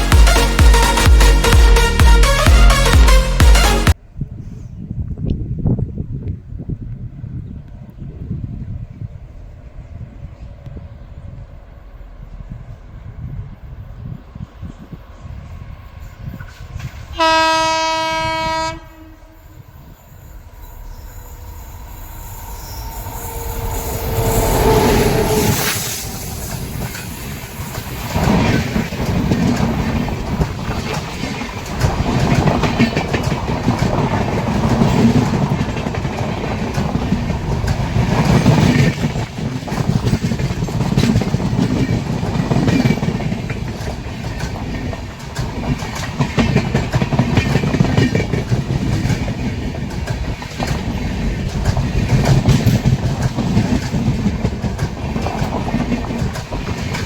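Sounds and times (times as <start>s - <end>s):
train coaches rumbling past: 0.0s - 4.8s, 6.7s - 57.0s
electric locomotive passing: 7.1s - 57.0s
wheels clacking over rail joints: 26.0s - 57.0s.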